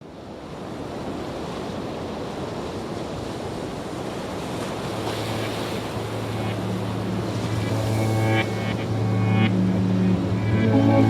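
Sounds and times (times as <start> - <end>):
waves washing on shore: 0.0 - 11.0
low steady hum: 5.8 - 11.0.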